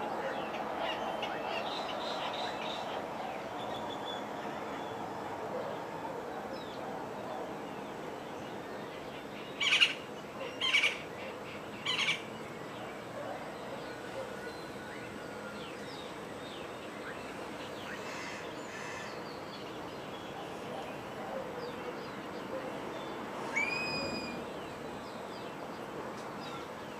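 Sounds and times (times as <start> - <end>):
harsh bird calls: 9.2 - 14.8, 15.7 - 25.3
faint bird chirps: 20.1 - 24.9.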